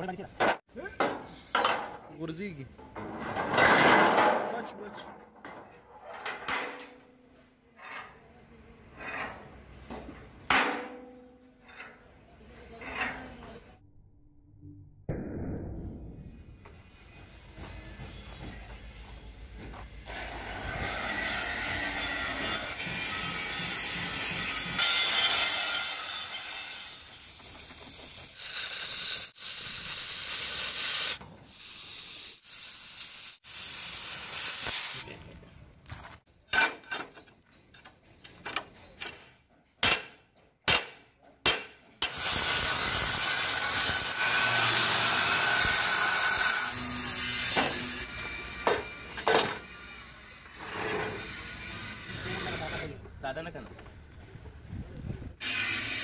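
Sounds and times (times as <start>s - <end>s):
angle grinder grinding steel: 42.1s - 53.0s.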